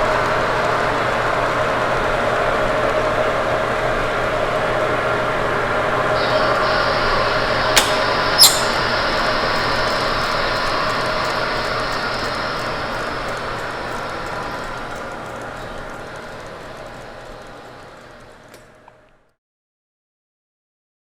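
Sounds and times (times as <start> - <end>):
faint motor whine: 0.0 - 19.3
sharp clicks: 7.8 - 15.9
model train rattling on track: 7.8 - 18.6.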